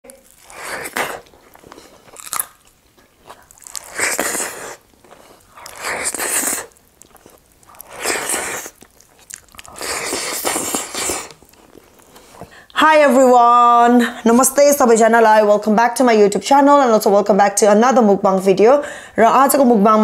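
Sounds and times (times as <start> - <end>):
person chewing and crunching food: 0.0 - 12.7.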